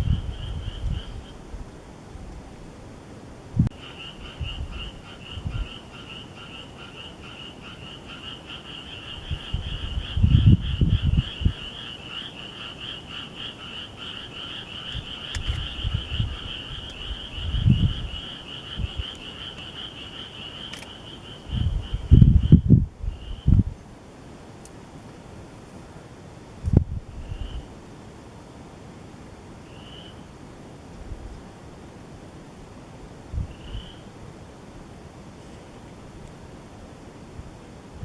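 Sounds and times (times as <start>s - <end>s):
low rumbles on microphone: 0.0s - 2.5s, 9.2s - 11.7s, 15.0s - 18.2s, 21.4s - 23.8s.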